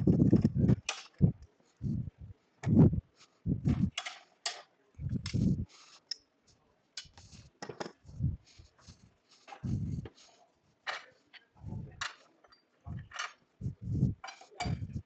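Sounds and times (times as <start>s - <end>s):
tools knocking and clattering: 7.0s - 8.1s, 10.9s - 15.0s.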